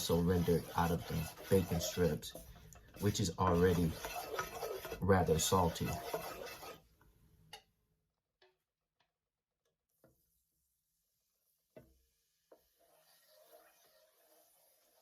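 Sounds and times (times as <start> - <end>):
scraping and stirring in a pan: 0.0 - 7.7, 8.4 - 15.0.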